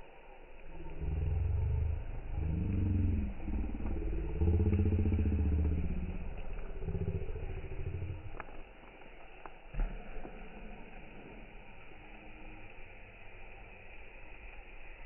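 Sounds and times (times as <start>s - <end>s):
motorcycle engine revving: 0.8s - 8.3s.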